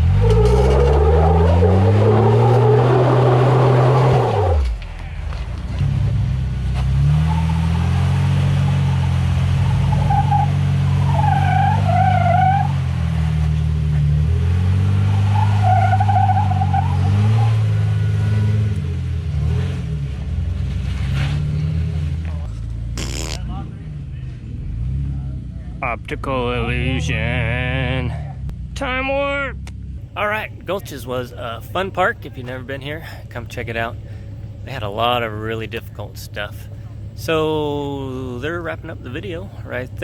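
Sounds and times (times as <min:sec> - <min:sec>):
short squealing sounds: 0:00.0 - 0:05.4, 0:22.9 - 0:23.5
off-road vehicle engine revving: 0:00.0 - 0:40.0.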